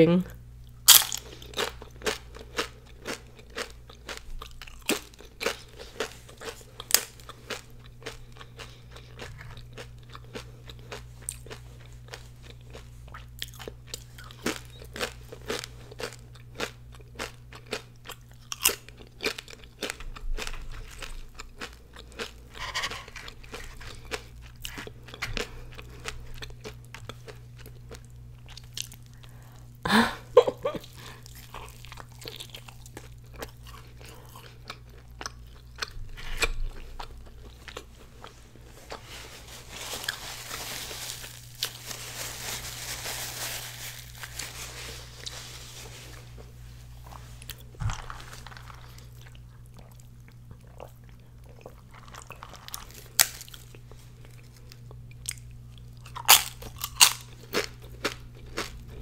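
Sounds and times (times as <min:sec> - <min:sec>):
crunching and chewing chips: 0:00.6 - 0:59.0.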